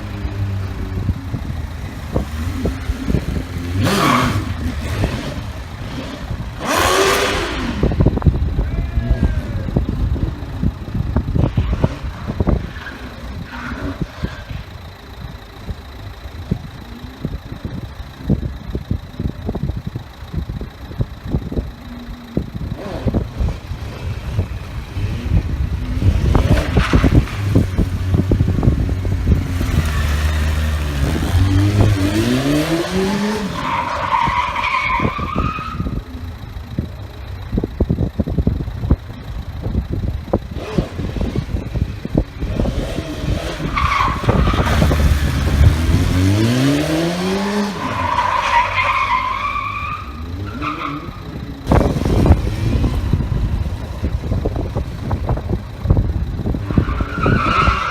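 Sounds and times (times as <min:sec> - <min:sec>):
motorcycle engine revving: 0:00.0 - 0:57.9
tyre squeal: 0:03.7 - 0:07.7, 0:11.6 - 0:15.0, 0:28.9 - 0:36.8, 0:42.9 - 0:45.5, 0:47.3 - 0:51.9, 0:56.5 - 0:57.9.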